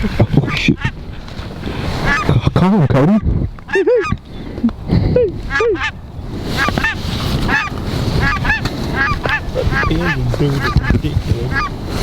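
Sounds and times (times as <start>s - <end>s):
wind noise: 0.0s - 12.0s
duck call quacking: 2.0s - 2.4s, 5.5s - 6.0s, 6.6s - 10.9s, 11.5s - 11.8s.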